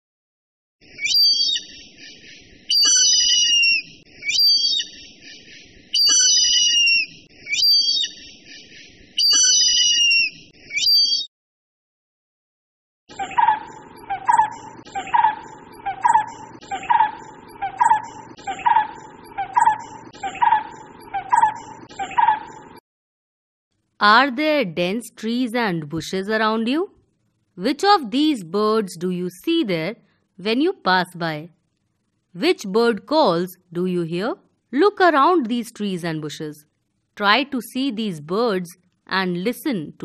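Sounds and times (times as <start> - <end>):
hornbill high-pitched calls: 0.8 - 11.3, 13.1 - 22.8.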